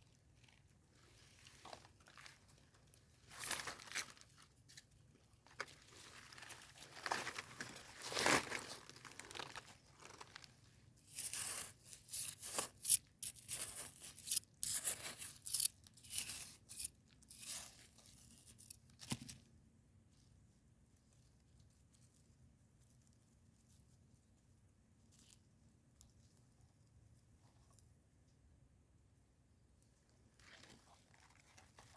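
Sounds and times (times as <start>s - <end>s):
rustling crinkling and tearing: 0.3s - 19.5s, 30.3s - 31.9s.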